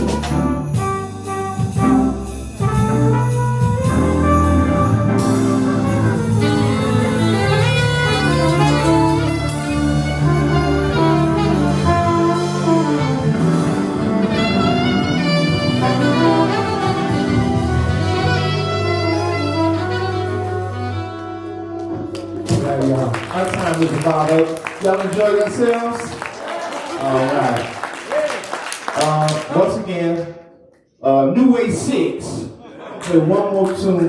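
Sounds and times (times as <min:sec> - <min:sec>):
horn-like melodic lines: 0:00.0 - 0:22.4
bass line: 0:00.0 - 0:24.3
small jazz band playing: 0:00.0 - 0:29.8.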